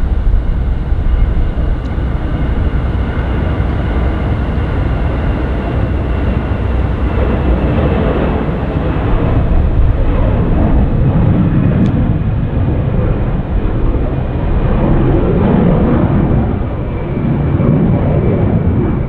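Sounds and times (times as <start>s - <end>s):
faint high whine: 0.0s - 19.0s
jet engines rumbling: 0.0s - 19.0s.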